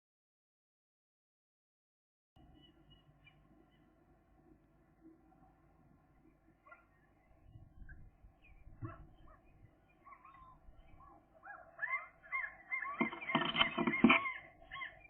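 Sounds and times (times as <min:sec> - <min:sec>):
gull chicks peeping: 0:06.3 - 0:15.0.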